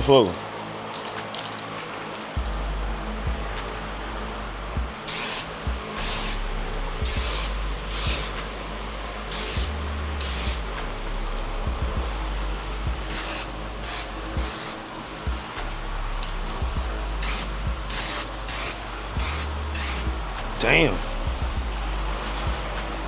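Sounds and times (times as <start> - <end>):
spray can hissing: 5.0 - 11.5, 13.1 - 16.5, 17.2 - 20.7.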